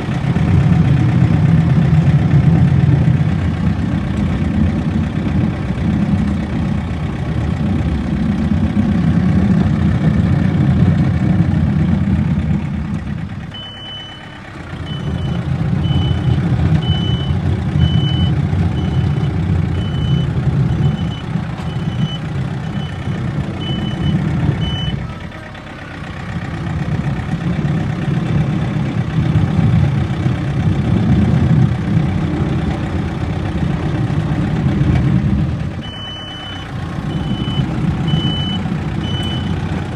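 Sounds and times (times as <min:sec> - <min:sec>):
diesel engine working hard: 0:00.0 - 0:39.9
reverse alarm beeping: 0:13.5 - 0:25.2, 0:35.8 - 0:39.6.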